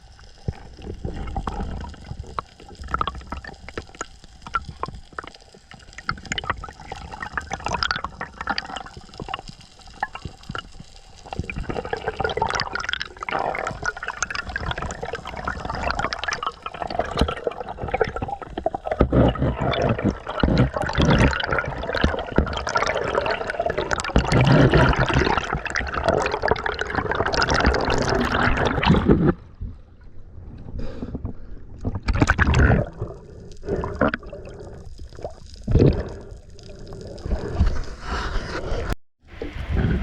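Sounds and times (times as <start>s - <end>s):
underwater bubbling bursts: 0.0s - 40.0s
water sloshing and gurgling: 0.0s - 40.0s.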